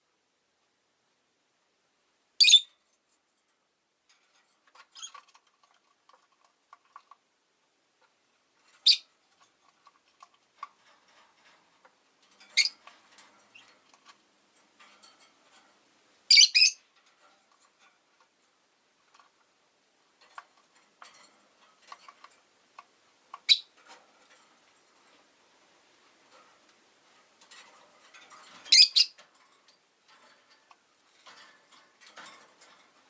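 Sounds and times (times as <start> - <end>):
lovebirds calling: 2.4 - 2.7, 8.8 - 9.1, 12.6 - 12.8, 16.3 - 16.8, 23.4 - 23.7, 28.7 - 29.2
soft clicking and chatter: 2.7 - 33.0.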